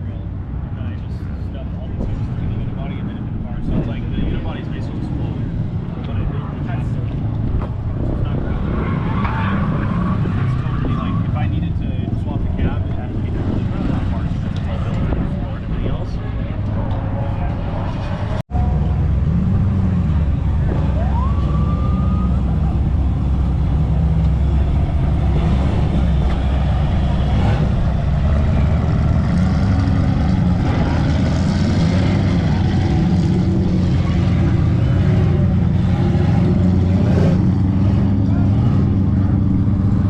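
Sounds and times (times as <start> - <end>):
vehicle engines running: 0.0 - 40.0
rising whistle: 20.9 - 22.7.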